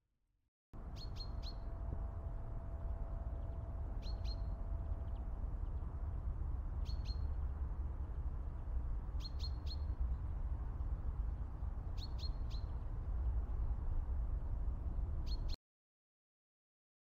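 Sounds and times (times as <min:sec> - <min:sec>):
songbird chirping: 0:00.8 - 0:01.9, 0:02.8 - 0:05.9
steady low rumble: 0:00.8 - 0:09.2.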